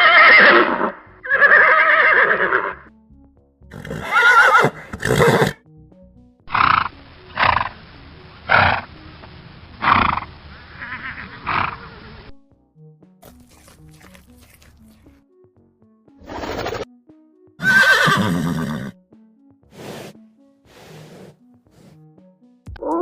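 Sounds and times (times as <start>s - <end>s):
horse whinnying: 0.0s - 2.9s, 3.7s - 5.6s, 10.8s - 11.9s, 17.6s - 19.0s.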